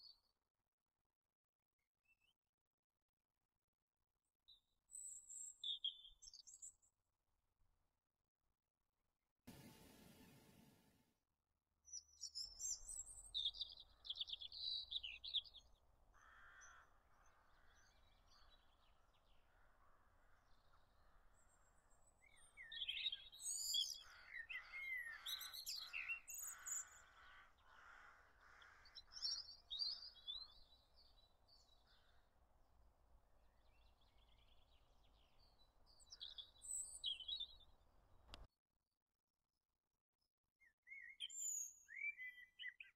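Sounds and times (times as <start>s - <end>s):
small birds singing and chirping: 4.5s - 6.9s, 11.9s - 32.3s, 33.4s - 37.8s, 40.6s - 42.9s.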